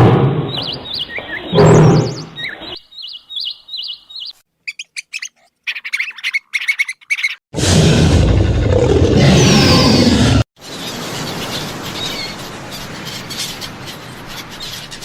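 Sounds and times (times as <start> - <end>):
small birds chirping: 0.5 - 7.4, 10.6 - 15.0.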